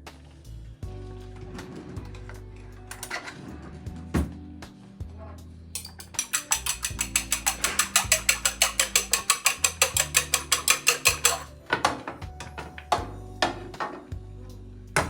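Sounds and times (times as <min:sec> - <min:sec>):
background music: 0:00.0 - 0:15.0
fast even clicking: 0:05.8 - 0:11.5.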